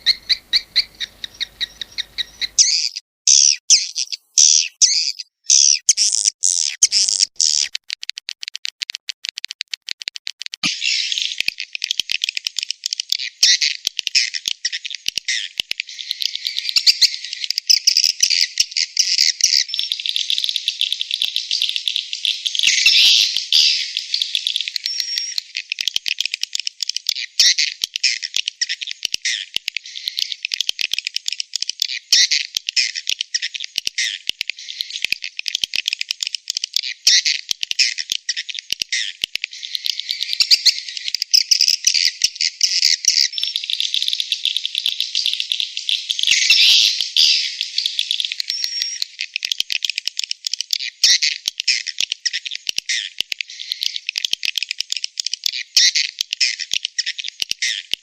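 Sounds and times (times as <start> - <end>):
swiftlets twittering: 0.0 - 2.7.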